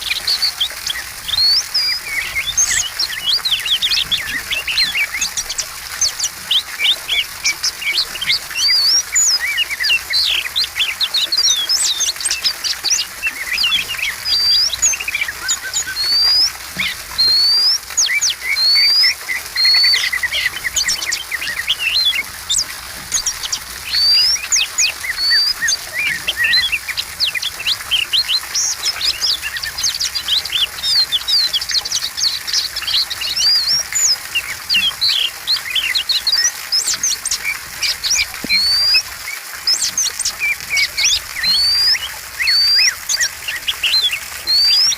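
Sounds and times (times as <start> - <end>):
bird singing whistles and chirps: 0.0 - 44.9.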